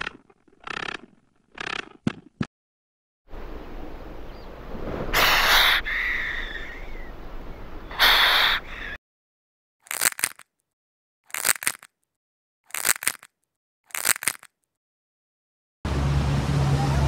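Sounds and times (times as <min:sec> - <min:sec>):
snake hissing: 0:05.0 - 0:06.6, 0:07.9 - 0:08.9
snail crunching clicks: 0:09.8 - 0:10.6, 0:11.3 - 0:12.1, 0:12.7 - 0:14.7.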